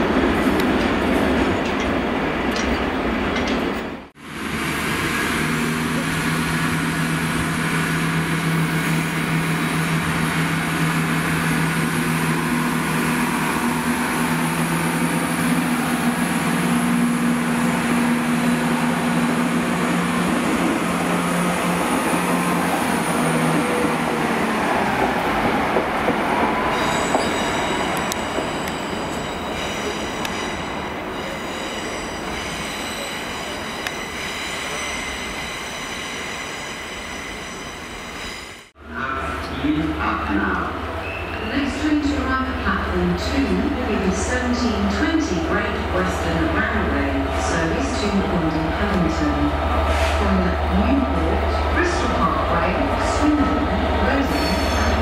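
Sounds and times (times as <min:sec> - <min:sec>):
rail noise: 0:00.0 - 0:55.0
diesel train engine droning: 0:04.0 - 0:55.0
train wheels squealing: 0:26.7 - 0:38.6, 0:41.0 - 0:41.6, 0:54.2 - 0:55.0.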